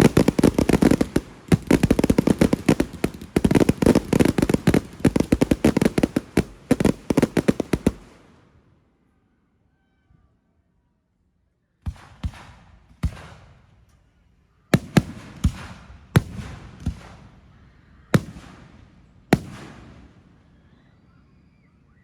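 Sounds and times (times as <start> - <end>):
fireworks bangs: 0.0 - 8.3, 14.8 - 17.4, 18.2 - 20.2.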